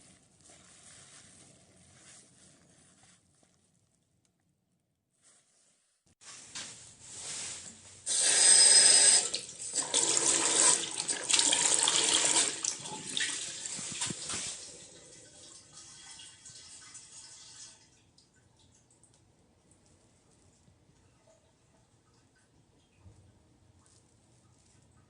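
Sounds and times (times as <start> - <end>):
faucet water running into sink: 8.1 - 17.9.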